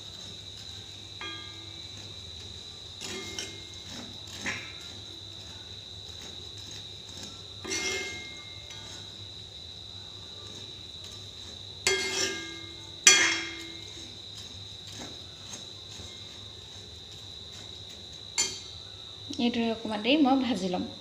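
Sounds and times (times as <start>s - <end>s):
spatula clanking against wok: 0.6s - 9.2s, 10.4s - 16.9s, 17.5s - 18.8s.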